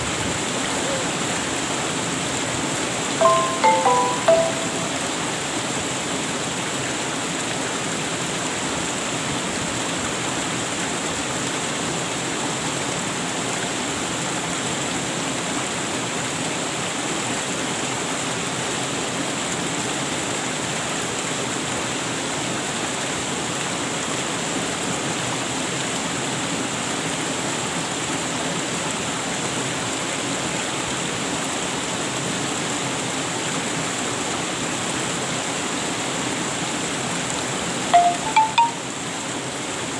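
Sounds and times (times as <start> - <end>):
waterfall rushing: 3.2 - 5.6, 38.0 - 39.0.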